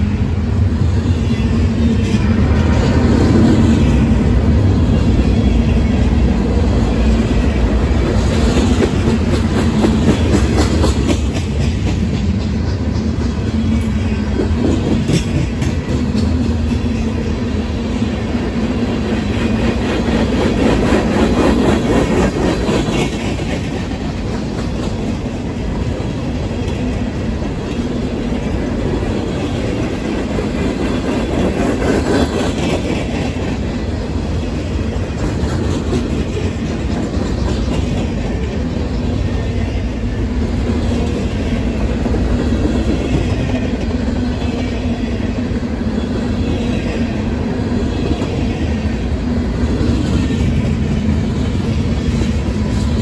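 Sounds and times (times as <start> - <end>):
freight train wheels rolling: 0.0 - 53.0.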